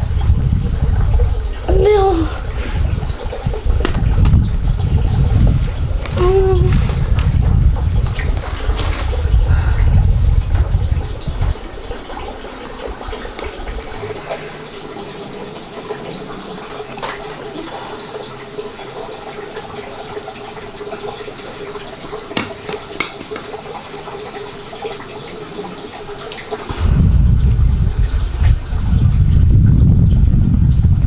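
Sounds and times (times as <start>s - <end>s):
water running: 0.0s - 31.0s.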